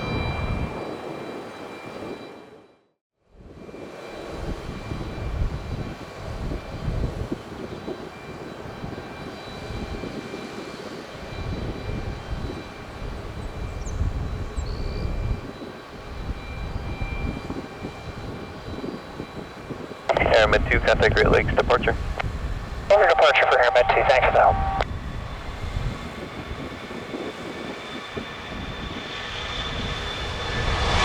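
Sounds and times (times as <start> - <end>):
jet engine rumble: 3.5 - 31.0
thin steady whine: 15.1 - 24.9.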